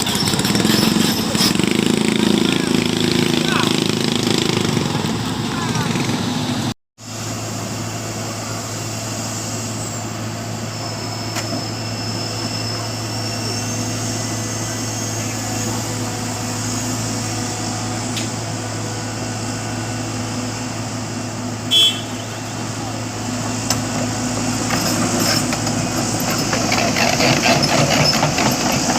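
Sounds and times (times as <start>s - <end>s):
vehicle engine running: 0.0s - 9.9s.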